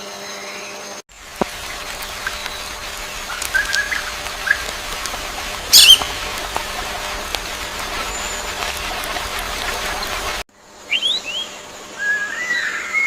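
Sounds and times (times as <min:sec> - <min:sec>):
outdoor background noise: 0:00.0 - 0:13.0
birds chirping: 0:01.1 - 0:11.7
loud high bird call falling: 0:05.6 - 0:06.3.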